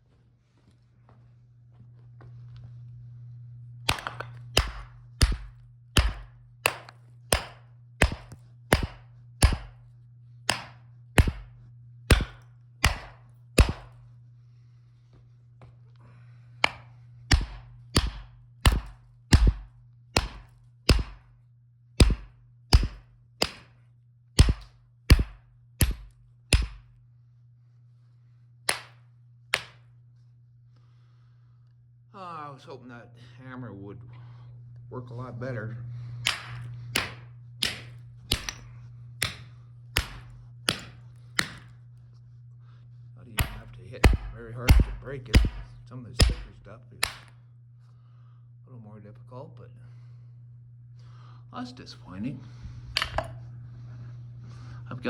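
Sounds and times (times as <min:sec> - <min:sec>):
steady low hum: 0:00.0 - 0:55.0
jack hammer striking rock: 0:03.9 - 0:09.8, 0:10.5 - 0:11.5, 0:12.1 - 0:14.0, 0:16.6 - 0:21.3, 0:22.0 - 0:23.7, 0:24.4 - 0:26.8, 0:36.2 - 0:41.7, 0:43.4 - 0:47.3.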